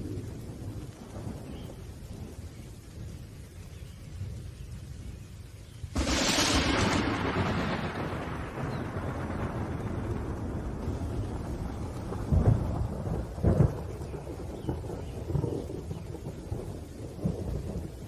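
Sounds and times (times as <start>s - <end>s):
thunder crack and rumble: 0.0s - 5.2s, 5.9s - 18.0s
steady rain: 0.0s - 18.0s
deep thunder booms: 5.9s - 18.0s.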